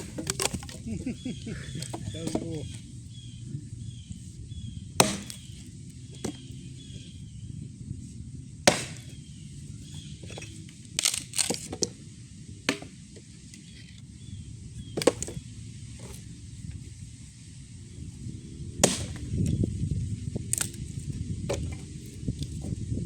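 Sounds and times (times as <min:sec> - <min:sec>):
wood cracking as it is chopped: 0:00.0 - 0:02.8, 0:05.0 - 0:06.5, 0:08.6 - 0:09.2, 0:09.9 - 0:11.9, 0:12.7 - 0:13.2, 0:14.9 - 0:15.4, 0:18.8 - 0:19.6, 0:20.2 - 0:22.8.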